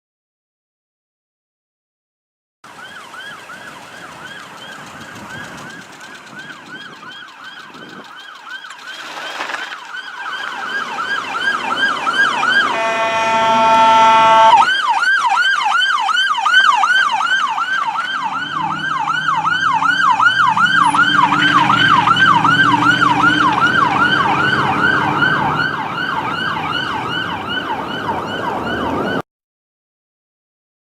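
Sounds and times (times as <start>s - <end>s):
fire truck siren yelping: 2.7s - 29.2s
horn blast: 11.5s - 14.8s.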